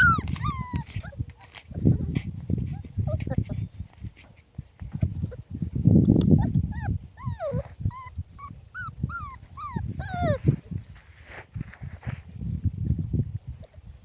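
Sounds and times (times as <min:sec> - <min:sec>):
puppy whimpering: 0:00.0 - 0:03.8, 0:04.9 - 0:05.5, 0:06.2 - 0:10.6
rustling: 0:10.0 - 0:12.6.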